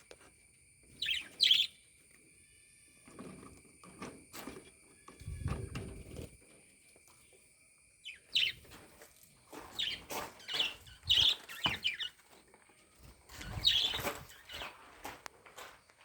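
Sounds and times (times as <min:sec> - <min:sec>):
budgerigars chirping: 0:01.0 - 0:01.8, 0:08.0 - 0:08.6, 0:09.6 - 0:12.2, 0:13.4 - 0:14.7.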